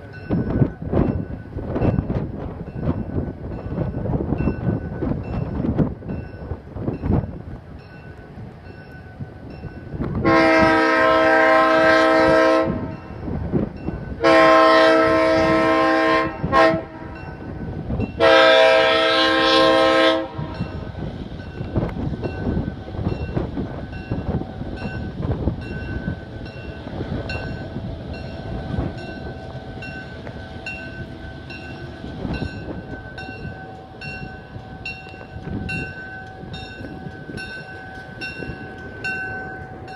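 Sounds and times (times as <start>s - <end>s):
locomotive air horn: 10.2s - 13.1s, 14.2s - 17.3s, 18.2s - 20.8s.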